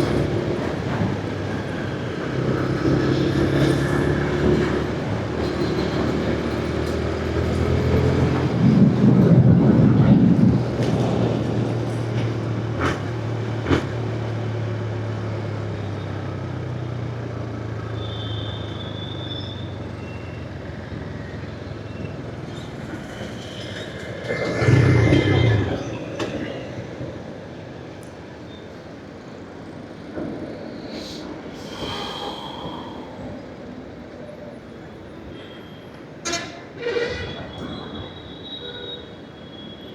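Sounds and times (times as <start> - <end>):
wind and road noise: 0.0 - 17.9.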